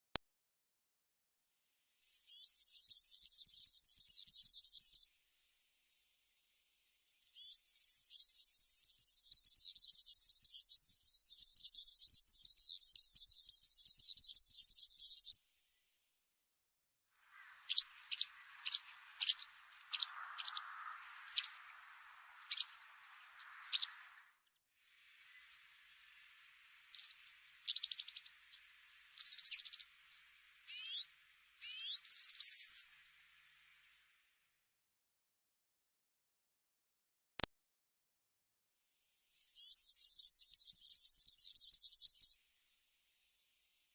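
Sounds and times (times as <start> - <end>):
small bird calls: 2.0 - 5.1, 7.2 - 15.4, 16.7 - 24.4, 25.0 - 34.3, 39.3 - 42.4.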